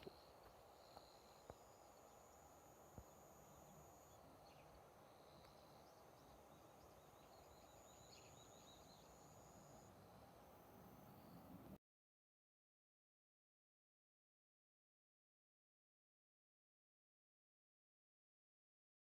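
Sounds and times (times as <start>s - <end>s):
faint high chirps: 0.0s - 11.8s.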